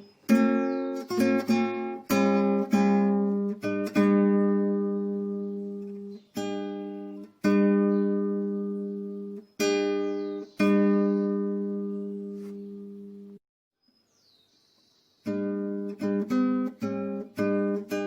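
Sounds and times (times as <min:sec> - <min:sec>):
acoustic guitar strumming chords: 0:00.0 - 0:13.4, 0:15.2 - 0:18.0.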